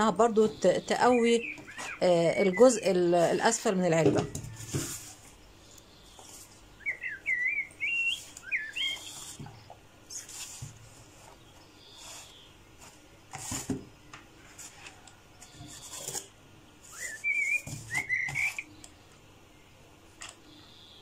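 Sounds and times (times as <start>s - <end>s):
bird whistling: 1.0s - 2.8s, 6.8s - 9.3s, 16.9s - 18.8s
cardboard being handled: 1.2s - 5.4s, 8.0s - 18.6s.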